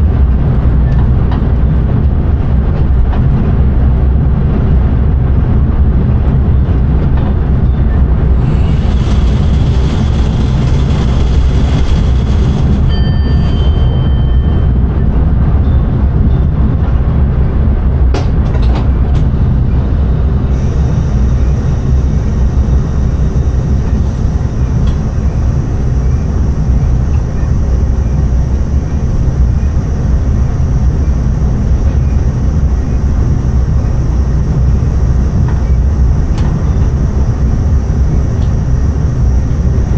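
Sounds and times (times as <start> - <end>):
train wheels rumbling: 8.3 - 13.9.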